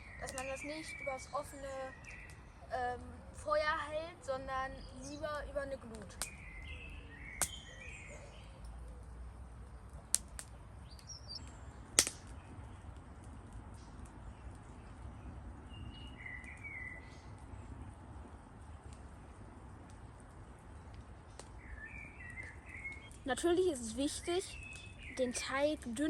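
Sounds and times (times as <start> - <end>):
birds chirping: 0.0 - 26.0
outdoor background noise: 0.0 - 26.0
sharp snaps: 0.2 - 0.6, 5.9 - 6.7, 7.4 - 7.8, 9.9 - 15.1, 20.9 - 21.6.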